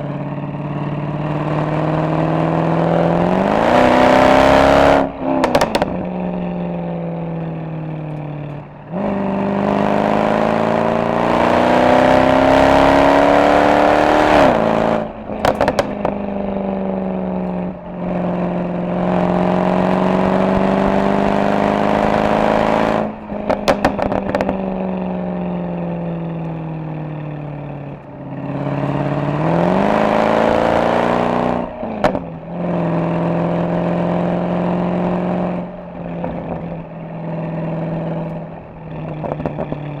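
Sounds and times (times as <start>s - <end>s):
car engine revving hard: 1.0s - 6.4s, 8.5s - 16.0s, 18.0s - 24.4s, 28.3s - 35.7s
exhaust crackles and pops: 4.4s - 9.2s, 14.2s - 19.5s, 20.1s - 33.0s, 35.8s - 40.0s.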